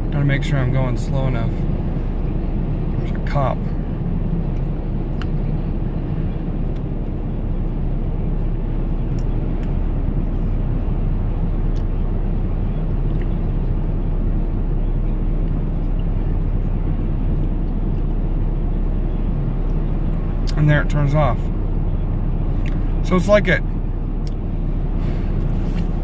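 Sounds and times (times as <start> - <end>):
pickup engine and road noise: 0.0 - 26.0.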